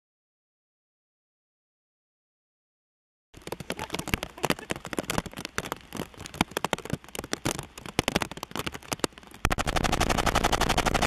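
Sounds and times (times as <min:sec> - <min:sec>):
heavy rain falling: 0:03.4 - 0:11.0.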